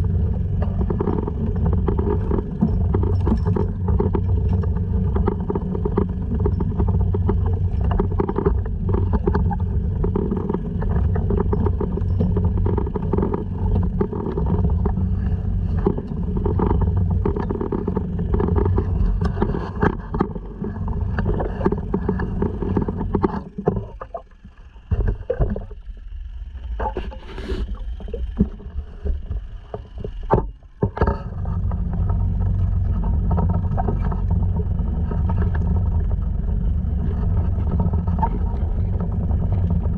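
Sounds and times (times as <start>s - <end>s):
outboard motor running: 0.0s - 39.9s
water noise: 0.0s - 39.9s.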